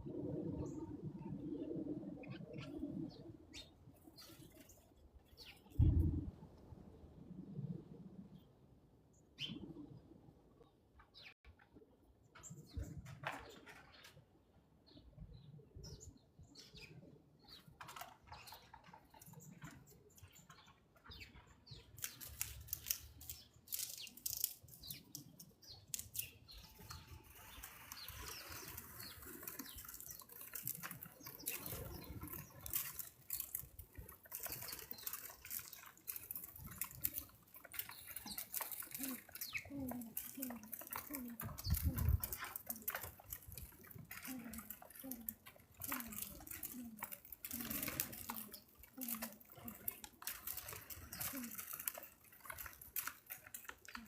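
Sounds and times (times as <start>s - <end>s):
animals clicking and rustling: 16.6s - 54.0s.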